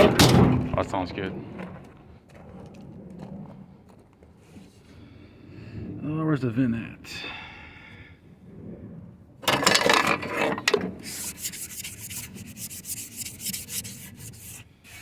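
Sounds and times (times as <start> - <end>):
scraping on gritty surface: 0.0 - 4.9, 9.4 - 15.0.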